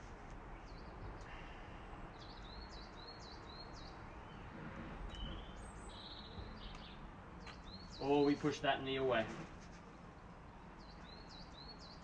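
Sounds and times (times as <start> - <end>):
outdoor background noise: 0.0 - 12.0
small songbird singing: 2.0 - 4.5, 5.1 - 8.6, 10.2 - 12.0.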